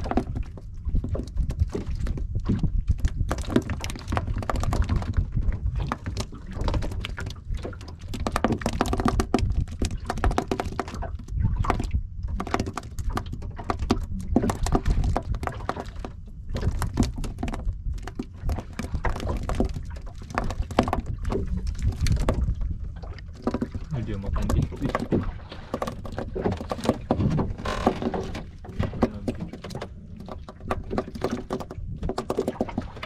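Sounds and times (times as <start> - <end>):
steady low rumble: 11.1 - 12.4
knocks and clicks of handling: 23.2 - 32.8.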